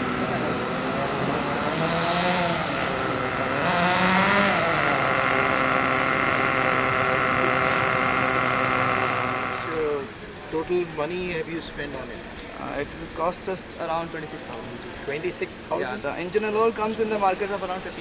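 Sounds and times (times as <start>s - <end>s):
small engine revving: 0.0s - 10.4s.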